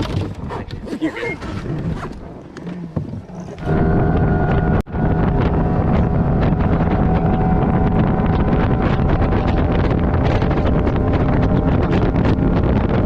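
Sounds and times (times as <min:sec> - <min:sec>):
wind buffeting microphone: 0:00.0 - 0:13.0
outboard motor droning: 0:03.2 - 0:13.0.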